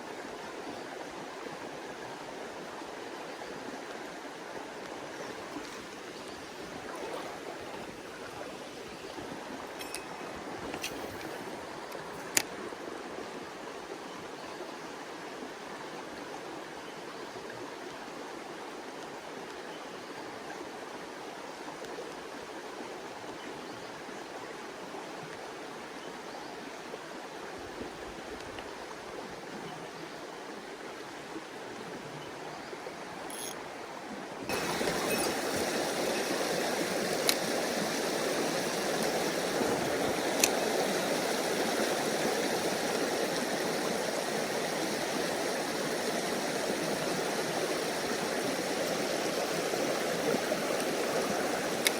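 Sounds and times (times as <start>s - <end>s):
stream rushing over rocks: 0.0s - 16.8s, 32.9s - 51.9s
faint ticks: 37.1s - 37.5s, 51.7s - 51.9s.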